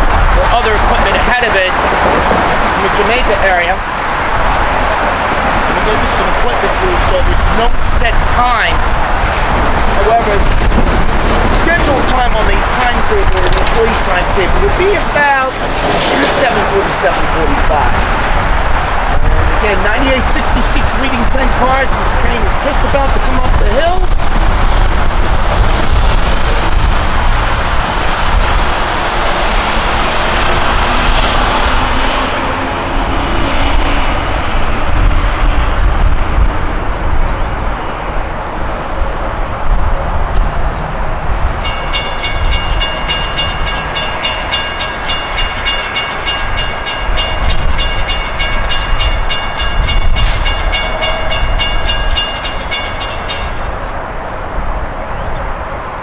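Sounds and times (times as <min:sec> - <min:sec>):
train passing rumble: 0:00.0 - 0:56.0
crossing bell ringing: 0:40.9 - 0:54.3.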